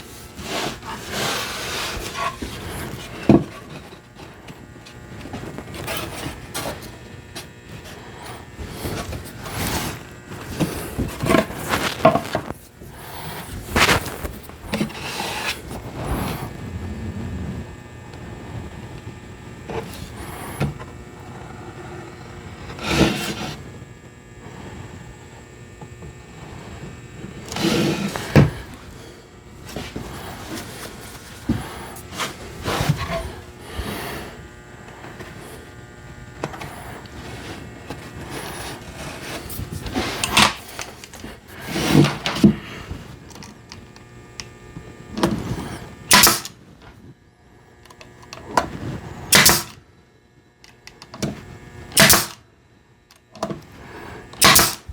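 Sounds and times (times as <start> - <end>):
wood and tools knocking on bench: 10.6 - 12.6.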